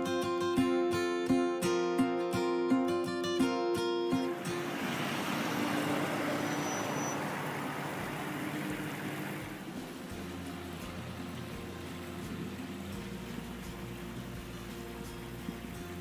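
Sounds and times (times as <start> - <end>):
water trickling in a stream: 4.2 - 16.0
low steady hum: 4.3 - 16.0.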